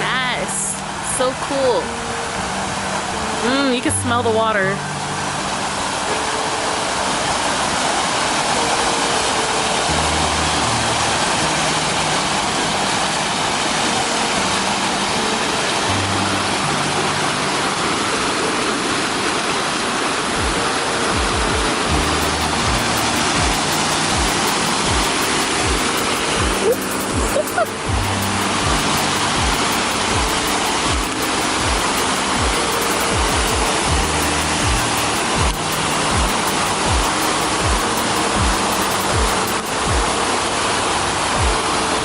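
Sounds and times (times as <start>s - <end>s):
fountain water splashing: 0.0s - 42.0s
background music with bass and beat: 21.2s - 40.1s.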